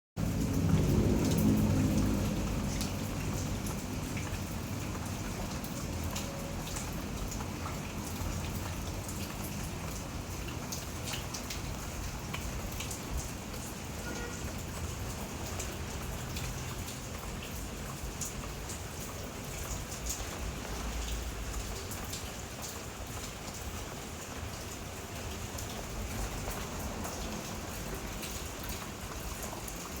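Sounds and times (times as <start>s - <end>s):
low rumble: 0.2s - 4.0s
raindrops pattering on surfaces: 0.2s - 30.0s
steady rain falling: 0.2s - 30.0s.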